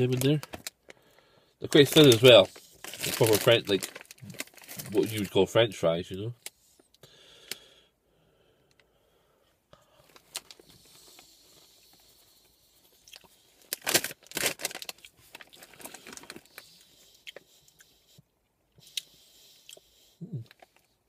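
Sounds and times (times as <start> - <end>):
person crunching fries: 12.9 - 16.6.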